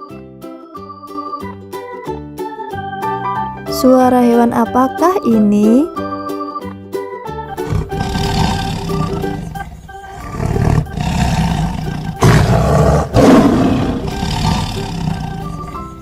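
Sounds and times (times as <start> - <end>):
soft background music: 0.0 - 16.0
tiger roaring and growling: 7.6 - 16.0.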